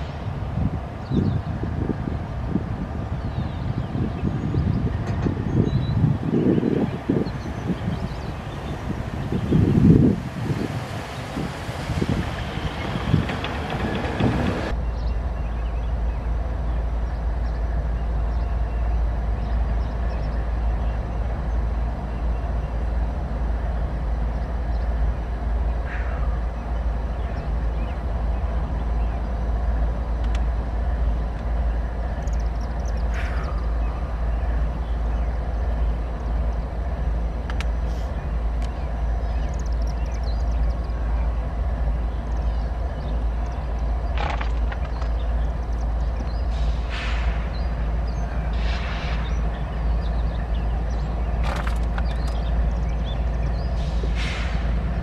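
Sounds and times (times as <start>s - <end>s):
freight train rumbling on rails: 0.0s - 55.0s.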